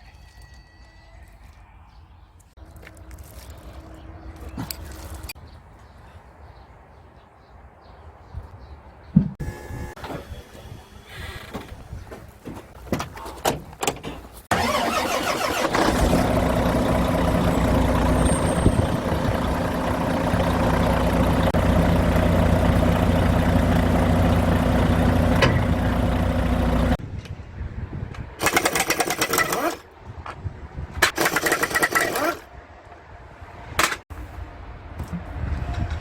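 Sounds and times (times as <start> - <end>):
truck diesel engine running: 14.5 - 27.0.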